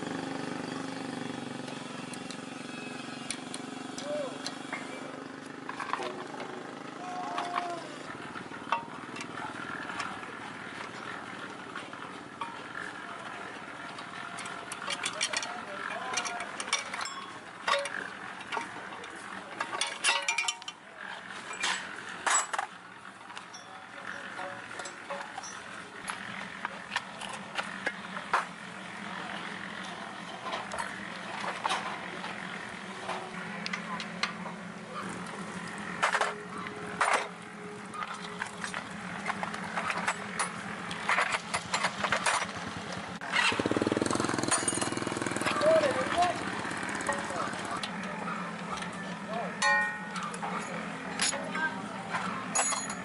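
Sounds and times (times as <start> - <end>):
sharp knocks and clanks: 8.4 - 10.2, 13.9 - 22.8, 23.4 - 28.6, 43.4 - 48.1
metal objects clinking: 12.2 - 27.9, 38.0 - 42.8, 44.2 - 53.0.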